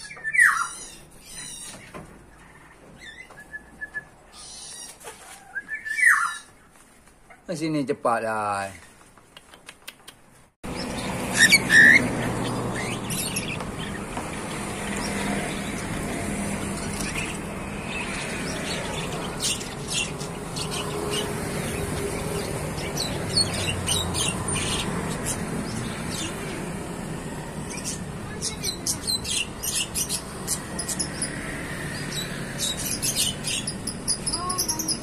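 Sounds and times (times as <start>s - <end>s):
bird squawks: 0.0s - 1.8s, 4.3s - 6.5s, 10.8s - 14.0s
high bird chirps: 0.0s - 6.6s, 10.7s - 35.0s.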